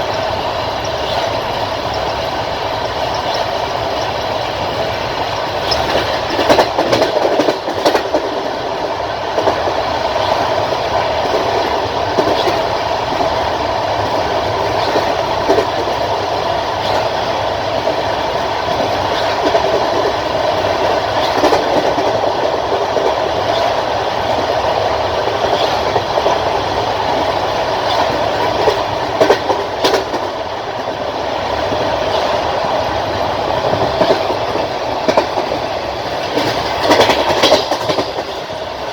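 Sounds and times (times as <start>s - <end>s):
train wheels rumbling on rails: 0.0s - 38.9s
wheels clacking over rail joints: 0.0s - 38.9s.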